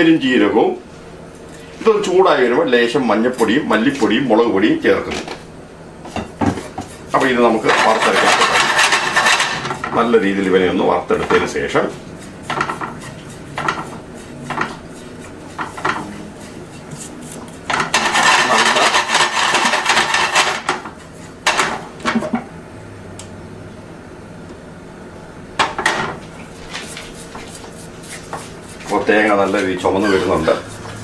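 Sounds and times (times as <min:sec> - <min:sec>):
spoon scraping in pan: 0:06.1 - 0:21.8, 0:26.1 - 0:31.0.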